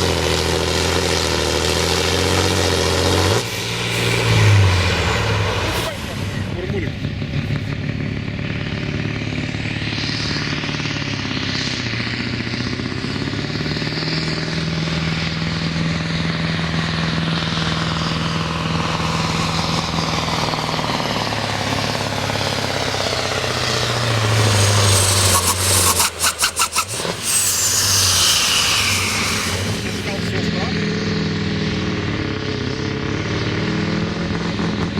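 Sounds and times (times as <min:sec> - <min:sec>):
truck engine running: 0:00.0 - 0:34.9
high whistle: 0:24.4 - 0:29.9.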